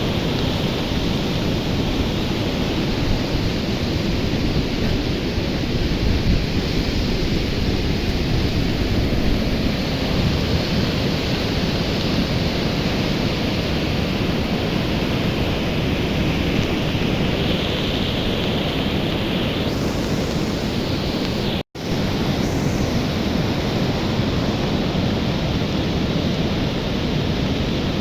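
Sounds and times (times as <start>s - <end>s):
rushing river water: 0.0s - 28.0s.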